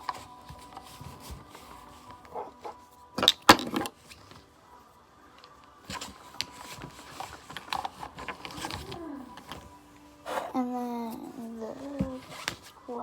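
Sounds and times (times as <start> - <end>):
bag rustling: 0.0 - 3.1, 5.7 - 10.6, 11.2 - 13.0
plastic makeup items clattering: 3.2 - 4.5, 5.4 - 9.8.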